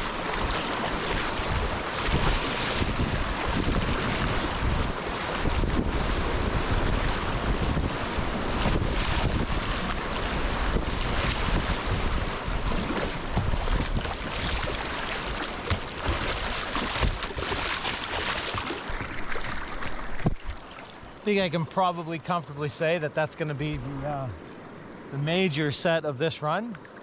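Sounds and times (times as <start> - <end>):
wind buffeting microphone: 0.0 - 20.6
rushing whitewater: 0.0 - 27.0.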